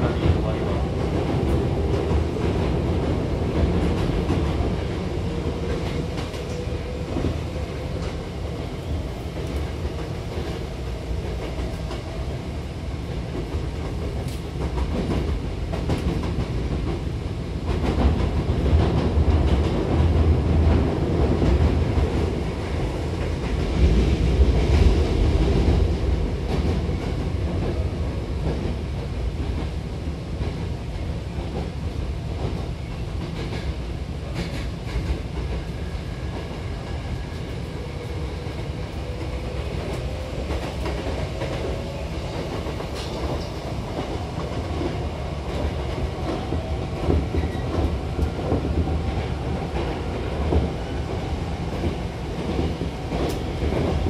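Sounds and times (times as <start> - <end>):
clickety-clack of rail joints: 0.0 - 54.0
train wheels rumbling on rails: 0.0 - 54.0.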